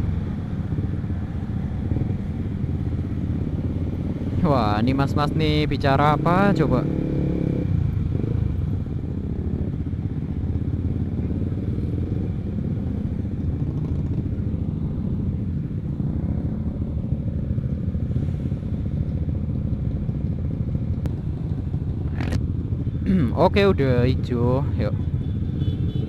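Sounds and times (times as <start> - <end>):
motorcycle engine idling: 8.7 - 23.7.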